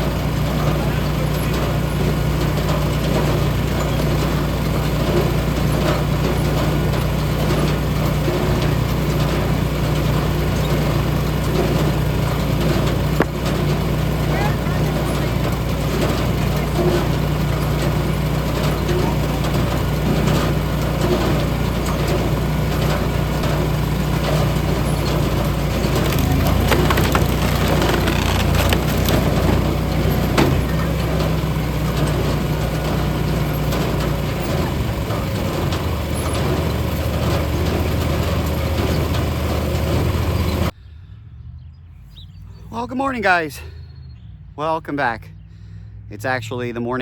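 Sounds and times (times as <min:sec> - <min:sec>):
firewood processor engine: 0:00.0 - 0:40.8
wood cracking and crunching: 0:23.1 - 0:33.2.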